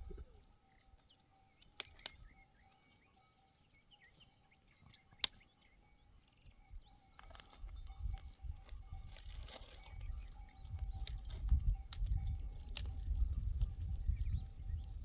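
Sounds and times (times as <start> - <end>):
grass torn and chewed: 7.2 - 15.0
hooves clicking: 7.2 - 15.0.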